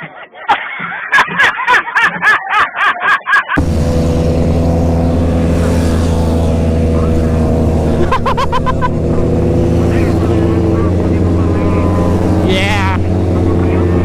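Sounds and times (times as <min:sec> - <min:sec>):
motorcycle engine running: 0:03.6 - 0:14.0.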